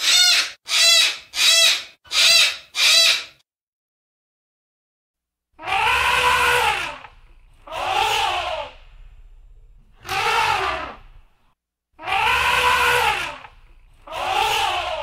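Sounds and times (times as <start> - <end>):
animal cries: 0.0 - 3.4, 5.6 - 8.8, 10.0 - 11.2, 12.0 - 15.0.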